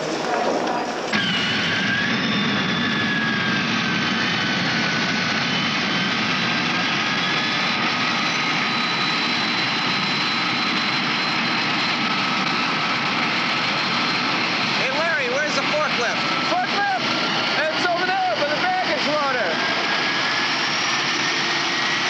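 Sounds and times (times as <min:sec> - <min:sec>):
jet engine whining: 0:00.0 - 0:22.0.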